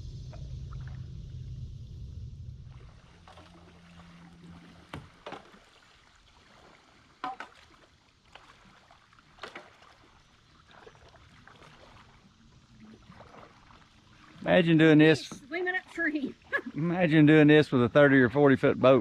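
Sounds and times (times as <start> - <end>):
short splashes or knocks: 2.6 - 16.8
kayak paddle strokes: 2.7 - 17.0.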